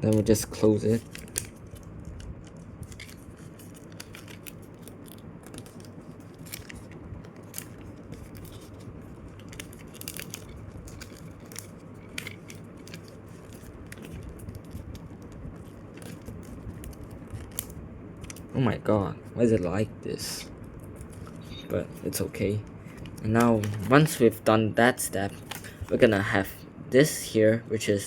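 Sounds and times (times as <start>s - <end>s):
steady low hum: 0.0s - 28.0s
paper folding rustles: 0.1s - 18.5s, 20.8s - 24.4s, 25.1s - 26.3s.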